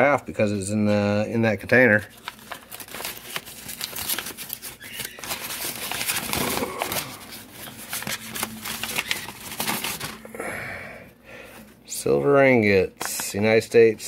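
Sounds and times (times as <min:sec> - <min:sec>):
packaging crinkling and rustling: 0:01.6 - 0:10.3.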